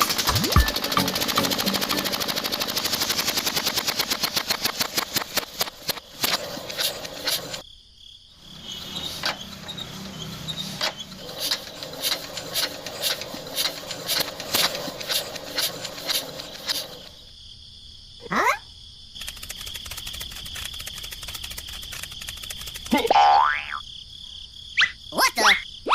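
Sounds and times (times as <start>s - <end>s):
rapid mechanical clicking: 0.0s - 7.6s, 9.1s - 17.3s, 19.1s - 23.1s.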